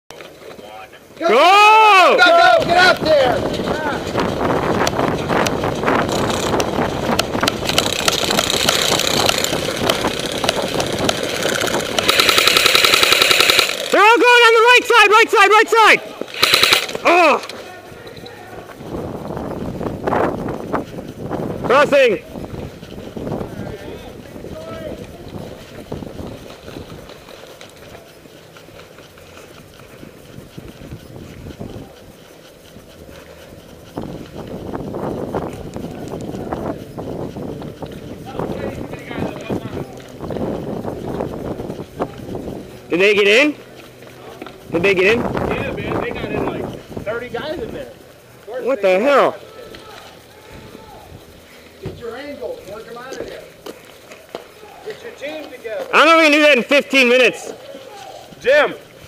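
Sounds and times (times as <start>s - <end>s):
running footsteps: 0.1s - 59.0s
wind rumbling: 1.4s - 59.0s
camera knocking and rubbing: 3.4s - 13.6s
sharp clicks: 4.6s - 14.6s, 16.2s - 18.8s.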